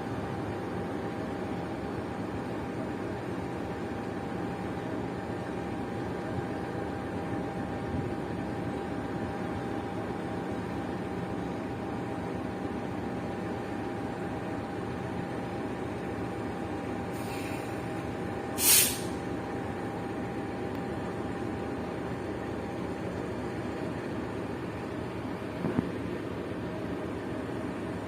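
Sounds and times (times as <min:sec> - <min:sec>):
train carriage rumble: 0:00.0 - 0:28.0.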